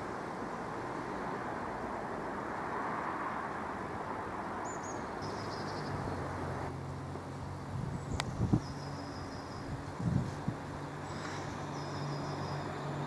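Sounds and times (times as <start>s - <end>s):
small bird chirping: 4.6s - 6.3s, 7.9s - 9.8s, 10.9s - 13.0s.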